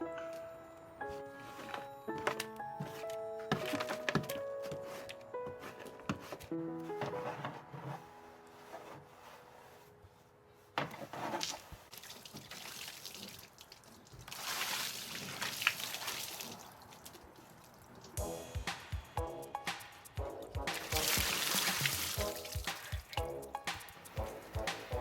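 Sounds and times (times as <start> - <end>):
water splashing and spraying: 11.4 - 18.2, 20.7 - 25.0.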